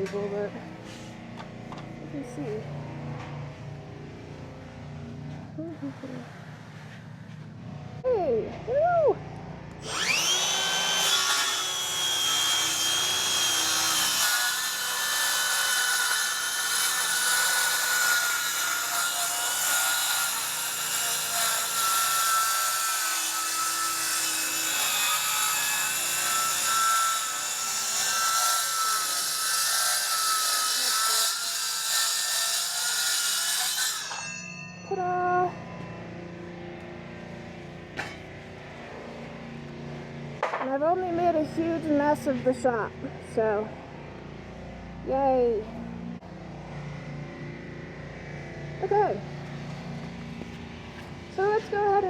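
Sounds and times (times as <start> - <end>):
power saw cutting plywood: 9.8 - 34.3.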